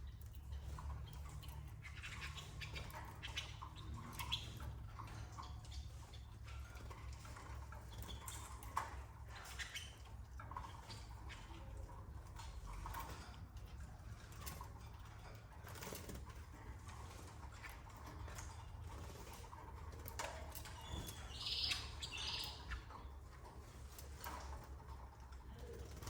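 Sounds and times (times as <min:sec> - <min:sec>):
birds rustling and clicking: 0:00.0 - 0:26.0
canary high chirps: 0:00.7 - 0:11.7, 0:20.5 - 0:23.7.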